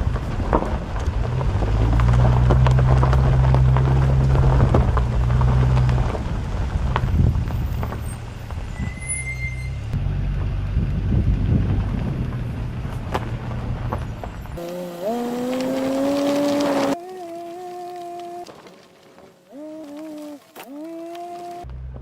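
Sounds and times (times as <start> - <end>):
vehicle engine running: 0.0 - 8.8, 9.7 - 22.0
brief squeal: 8.1 - 10.0.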